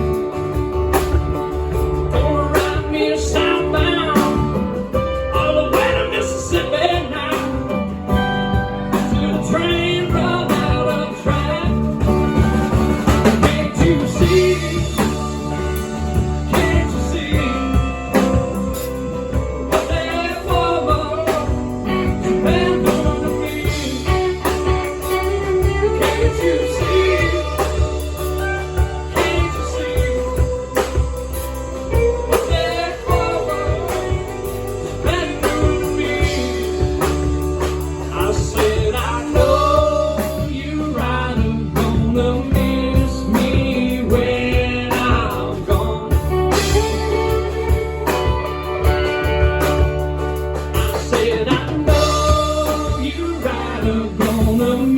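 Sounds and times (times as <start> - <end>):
bending lead guitar line: 0.0 - 54.9
live band playing blues-rock: 0.0 - 54.9.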